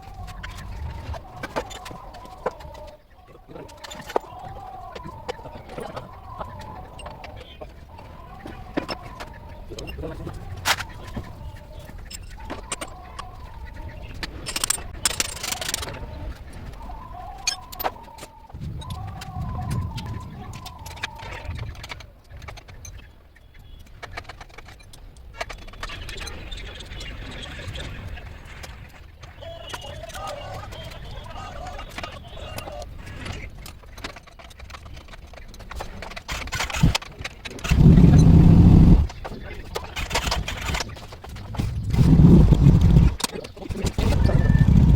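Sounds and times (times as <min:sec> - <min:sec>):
birds calling: 0:00.0 - 0:44.9
low steady hum: 0:37.6 - 0:39.3.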